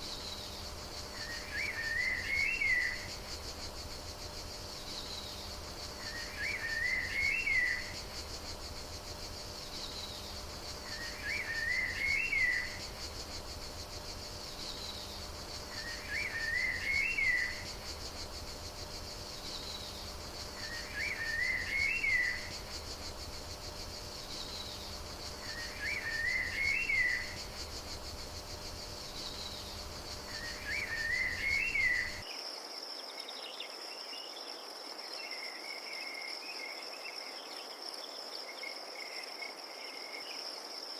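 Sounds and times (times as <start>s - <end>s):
high cricket trill: 0.0s - 33.2s
insect chorus: 0.0s - 40.9s
songbird phrase: 29.2s - 32.3s.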